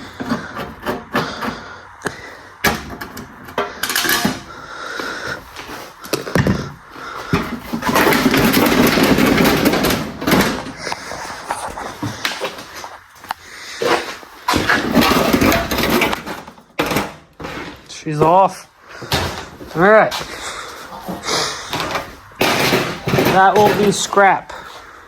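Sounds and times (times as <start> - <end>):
sheet metal knocks and clanks: 2.6 - 4.6, 7.3 - 11.0, 21.1 - 24.3.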